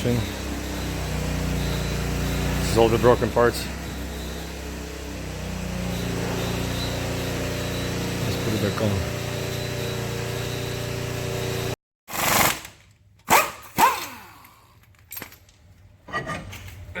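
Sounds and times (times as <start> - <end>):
mechanical hum with tones: 0.0 - 11.8.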